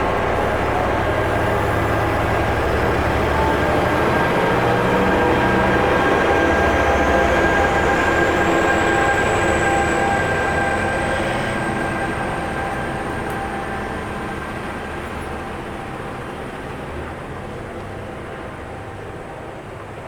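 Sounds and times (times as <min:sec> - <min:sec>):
train running on rails: 0:00.0 - 0:20.0.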